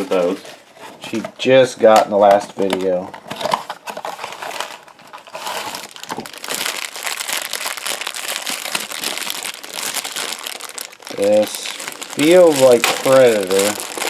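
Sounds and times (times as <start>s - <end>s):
foil bag crinkling: 3.4s - 14.0s.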